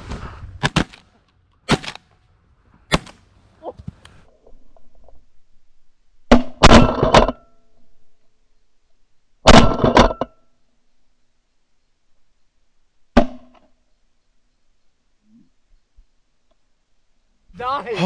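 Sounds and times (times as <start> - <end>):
shotguns firing: 0.6 - 1.1, 1.7 - 2.1, 2.9 - 3.2.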